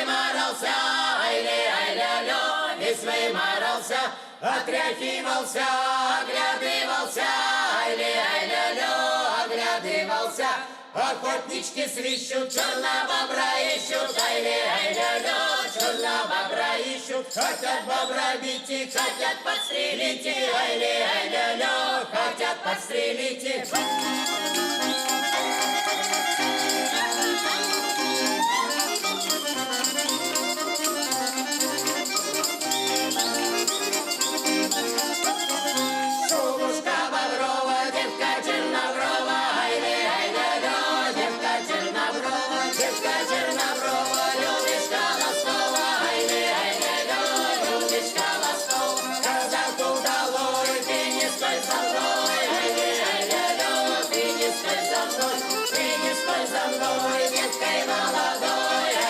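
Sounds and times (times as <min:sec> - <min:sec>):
folk ensemble music: 0:23.7 - 0:59.0.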